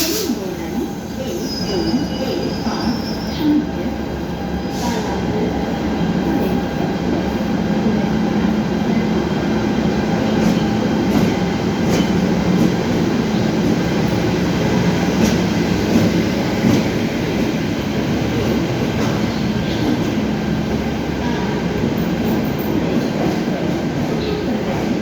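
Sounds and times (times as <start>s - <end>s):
train wheels rumbling: 0.0s - 25.0s.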